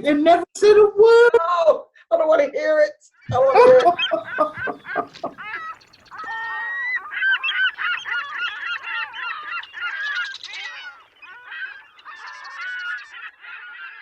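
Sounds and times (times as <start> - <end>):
flock of birds calling: 3.2 - 14.0.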